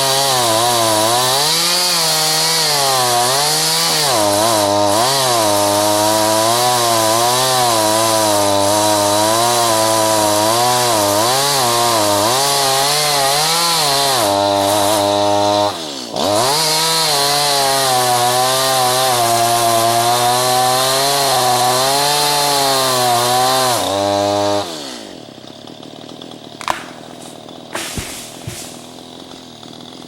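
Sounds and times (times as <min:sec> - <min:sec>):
chainsaw cutting wood: 0:00.0 - 0:30.0
sharp knocks: 0:26.6 - 0:29.4.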